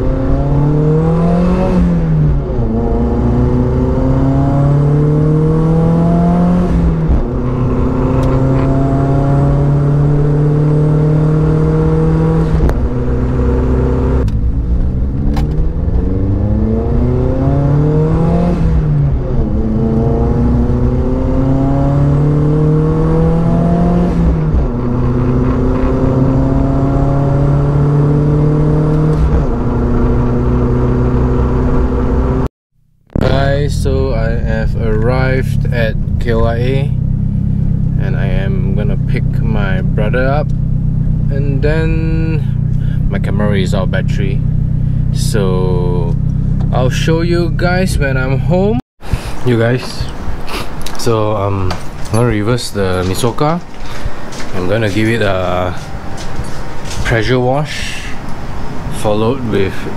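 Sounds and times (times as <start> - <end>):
car engine revving through gears: 0.0 - 32.5, 49.8 - 59.9
loud exhaust: 33.1 - 51.8, 53.2 - 59.9.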